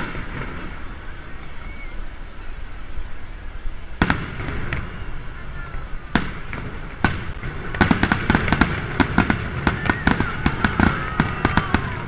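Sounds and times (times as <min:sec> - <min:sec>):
fireworks bangs: 0:00.0 - 0:01.4, 0:03.9 - 0:12.0
crackling firework stars: 0:00.0 - 0:12.0.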